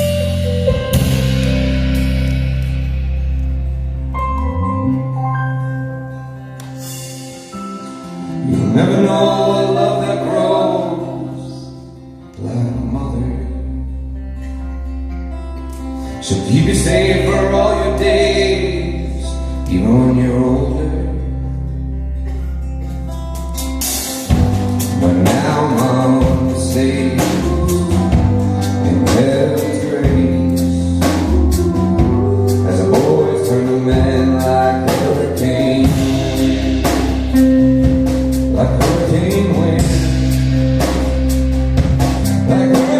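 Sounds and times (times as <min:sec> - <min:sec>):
drums: 0:00.0 - 0:04.8, 0:06.6 - 0:10.3, 0:22.3 - 0:42.9
live band playing: 0:00.0 - 0:12.3, 0:14.1 - 0:42.9
person singing: 0:07.7 - 0:13.9, 0:16.1 - 0:21.5, 0:24.8 - 0:41.4, 0:42.2 - 0:42.9.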